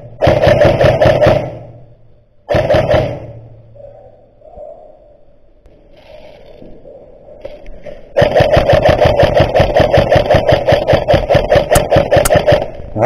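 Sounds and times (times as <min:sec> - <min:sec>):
airsoft rifle full-auto burst: 0:00.2 - 0:01.8, 0:02.5 - 0:03.4, 0:08.2 - 0:12.8.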